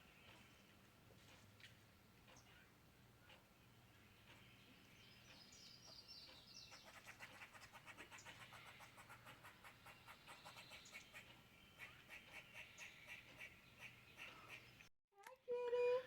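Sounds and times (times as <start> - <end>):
small animals chirping: 5.4 - 14.7.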